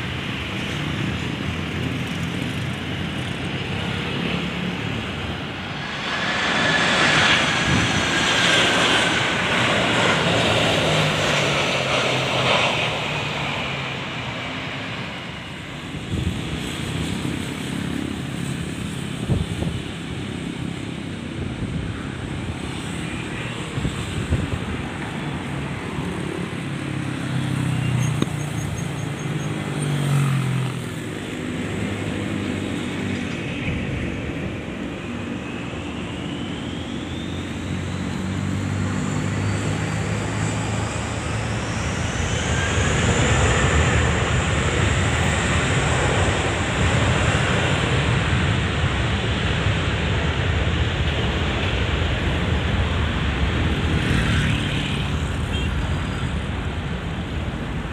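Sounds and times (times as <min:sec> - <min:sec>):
road vehicle engine noise: 0:00.0 - 0:57.9
jet engines spooling up: 0:01.6 - 0:19.1, 0:32.6 - 0:53.9.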